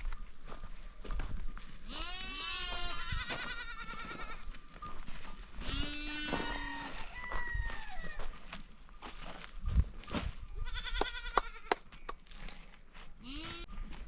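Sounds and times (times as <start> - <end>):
goats bleating: 1.9 - 4.5, 5.6 - 6.8, 10.6 - 11.7, 13.2 - 13.7.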